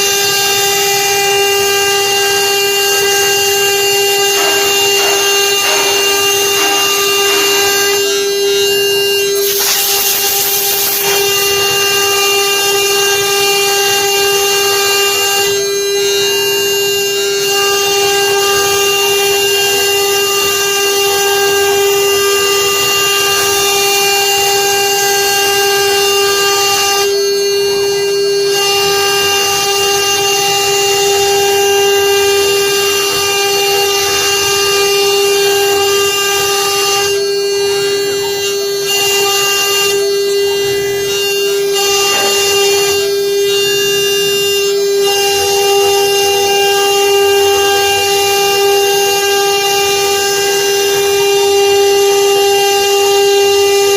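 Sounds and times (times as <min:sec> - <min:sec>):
router spindle whine: 0:00.0 - 0:53.9
bit cutting wood hiss: 0:09.4 - 0:11.3.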